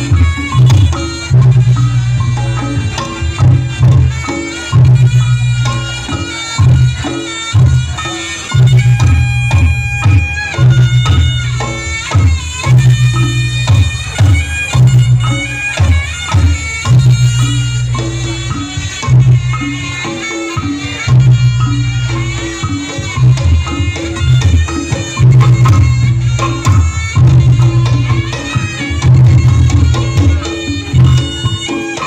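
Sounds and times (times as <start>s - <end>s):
low drum and gong beat: 0.0s - 32.0s
nasal reed pipe melody: 0.0s - 32.0s.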